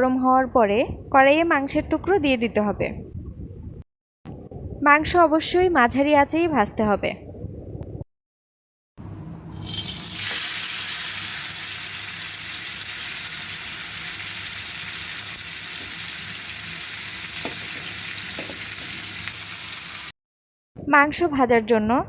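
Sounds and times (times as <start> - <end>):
chicken sizzling in hot oil: 9.5 - 20.1.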